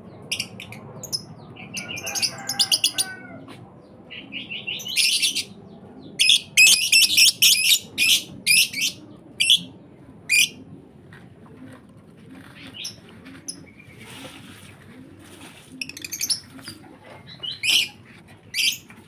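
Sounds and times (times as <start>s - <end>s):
soft rustle: 11.1s - 17.3s
bird chicks chirping: 15.9s - 19.0s.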